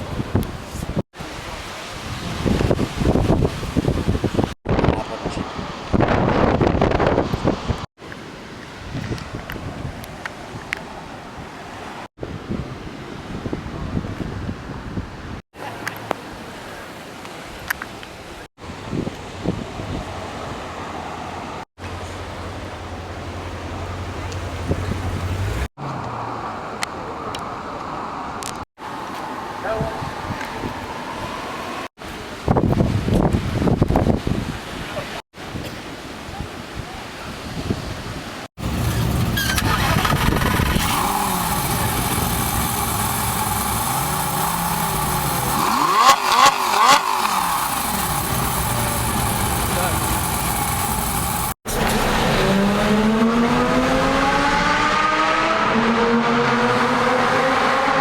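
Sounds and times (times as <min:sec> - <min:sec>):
wind buffeting microphone: 0:02.0 - 0:07.9, 0:32.4 - 0:35.6
exhaust cracks: 0:38.6 - 0:53.7
sports car engine revving: 0:38.6 - 0:58.0.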